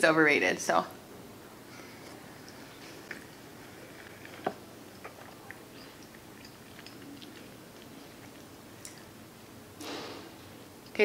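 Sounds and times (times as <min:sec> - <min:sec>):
person chewing food: 0:01.7 - 0:09.6
wet mouth clicks: 0:02.4 - 0:09.1.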